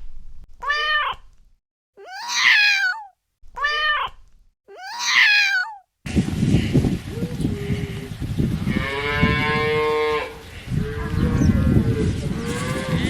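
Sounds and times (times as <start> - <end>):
cow mooing: 8.7 - 13.0.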